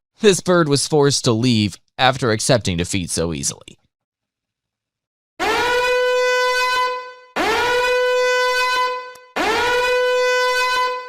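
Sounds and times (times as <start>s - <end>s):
horn blasts: 5.4s - 11.0s.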